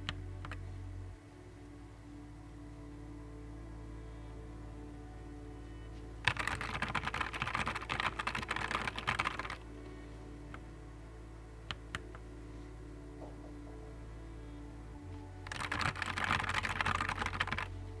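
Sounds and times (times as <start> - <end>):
mechanical keyboard typing: 6.3 - 9.6, 15.5 - 17.7.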